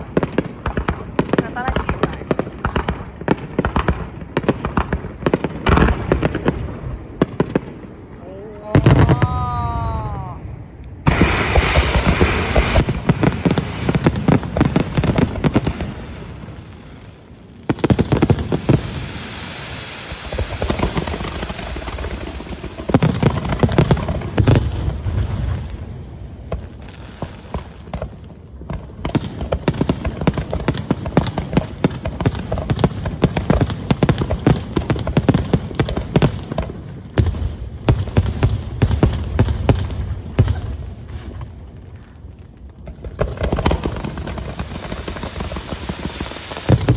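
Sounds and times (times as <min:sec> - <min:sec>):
fireworks crackling: 0:00.0 - 0:46.9
firework shells booming: 0:28.7 - 0:41.6, 0:46.6 - 0:46.9.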